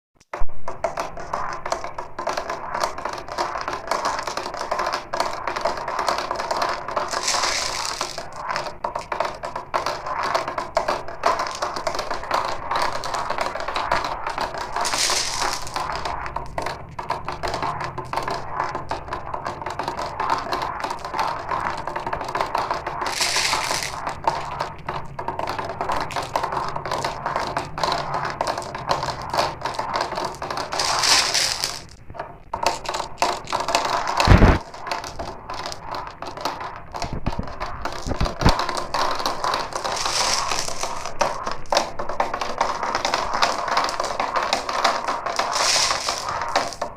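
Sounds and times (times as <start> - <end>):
marbles rattling down a run: 0.7 - 46.9
loud knock: 32.2 - 34.7.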